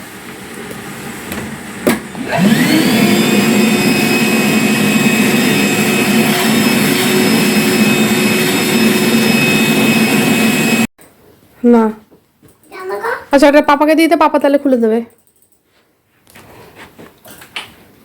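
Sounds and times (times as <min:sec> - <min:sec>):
wet vacuum motor whining: 0:00.4 - 0:10.9.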